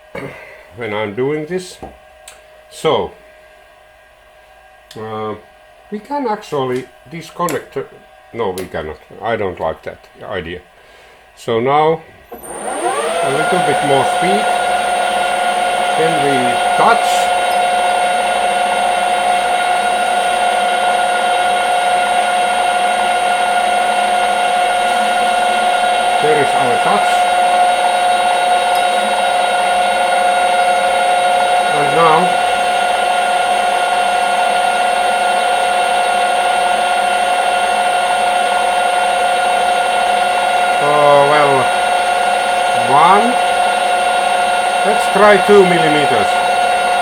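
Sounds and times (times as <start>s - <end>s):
metal lathe whining: 12.3s - 47.0s.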